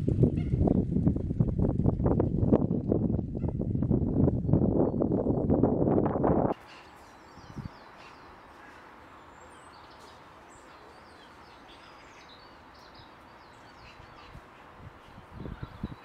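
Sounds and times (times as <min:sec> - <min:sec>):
outdoor ambience hiss: 0:06.4 - 0:16.0
small birds chirping: 0:06.6 - 0:16.0.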